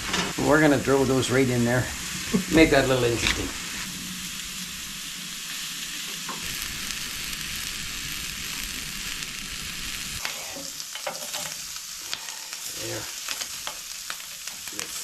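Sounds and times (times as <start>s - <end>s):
sausages sizzling in a pan: 0.0s - 15.0s.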